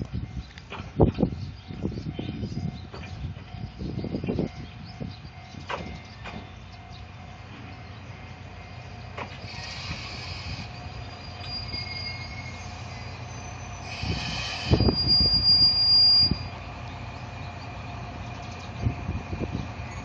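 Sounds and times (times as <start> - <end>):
high squeal of brakes: 9.3 - 16.6
heavy vehicle running: 16.2 - 20.0.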